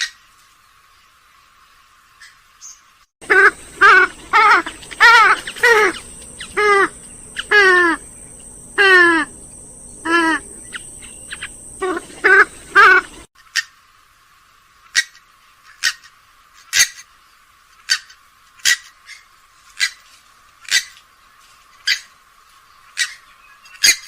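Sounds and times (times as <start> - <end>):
swamphen calling: 2.2 - 13.7.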